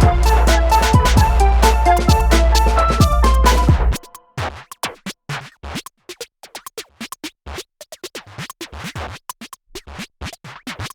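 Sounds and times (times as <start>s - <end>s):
deep kick drums dropping in pitch: 0.0s - 4.0s
electronic music with choppy beat: 0.0s - 4.9s.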